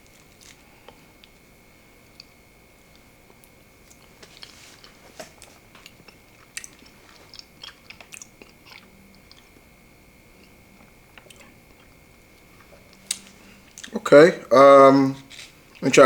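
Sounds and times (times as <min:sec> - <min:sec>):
low hum: 0:00.0 - 0:16.0
person chewing food: 0:02.1 - 0:09.7, 0:10.3 - 0:14.0.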